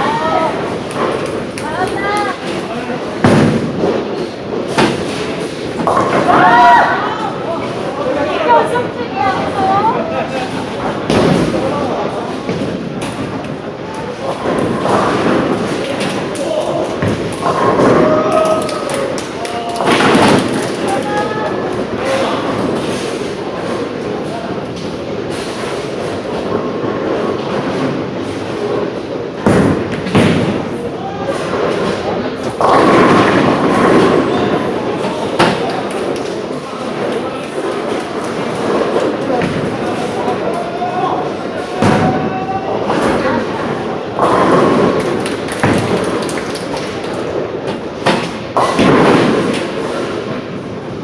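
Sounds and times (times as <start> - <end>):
bowling balls rolling: 0.0 - 51.0
bowling balls hitting pins: 0.6 - 6.8, 10.6 - 21.1, 31.4 - 40.5, 41.7 - 50.7
bowling ball rolling on wooden lane: 12.4 - 18.3, 42.9 - 50.4
bowling ball crashing into pins: 14.2 - 19.2, 19.8 - 21.0, 29.4 - 30.8, 41.8 - 50.6.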